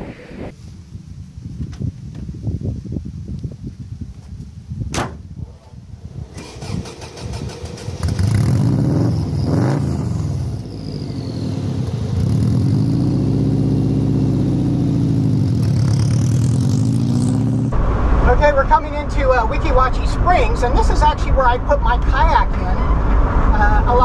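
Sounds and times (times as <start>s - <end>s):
starter cranking engine: 6.2s - 8.7s
car engine revving and idling: 7.0s - 18.8s.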